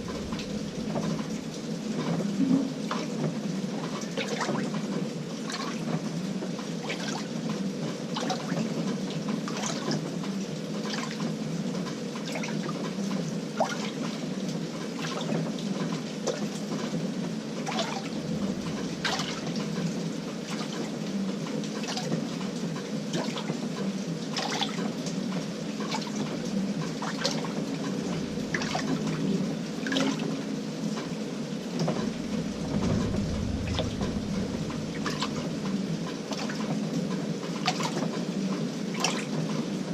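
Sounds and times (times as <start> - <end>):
washing machine low hum: 0.0 - 39.9
water sloshing in washing machine: 0.0 - 39.9.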